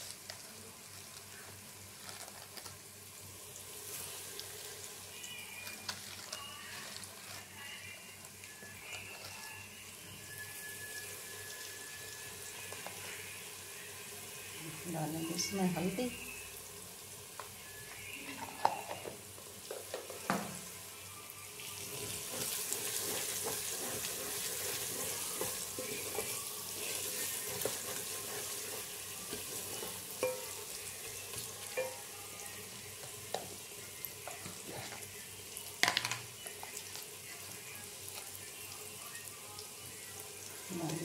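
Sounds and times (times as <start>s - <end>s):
vegetables sizzling in oil: 0.0s - 41.0s
spoon knocking against pot: 30.2s - 30.6s, 31.8s - 32.1s.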